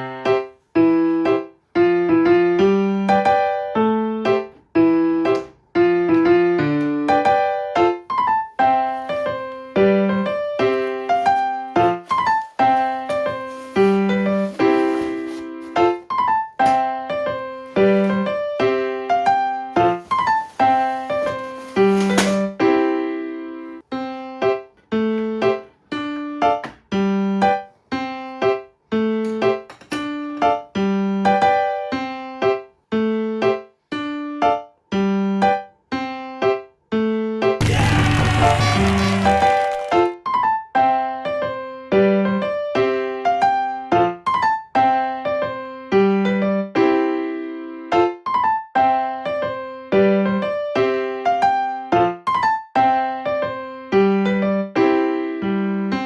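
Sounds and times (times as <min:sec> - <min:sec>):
piano melody: 0:00.0 - 0:35.7.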